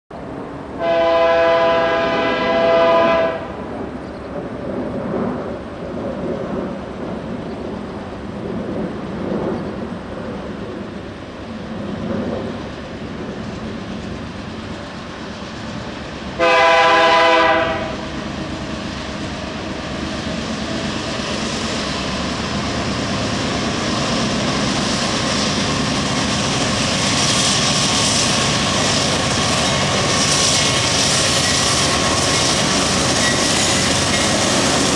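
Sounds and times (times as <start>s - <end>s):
train rumble: 0.1s - 34.9s
locomotive air horn blasts: 0.8s - 3.6s, 16.4s - 18.1s.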